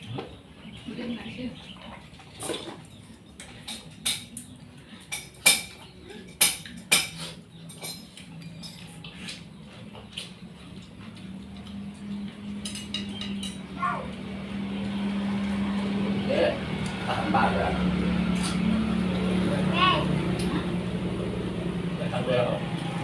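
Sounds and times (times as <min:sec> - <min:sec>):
cutlery clinking on plate: 0:03.4 - 0:09.4, 0:12.5 - 0:13.7.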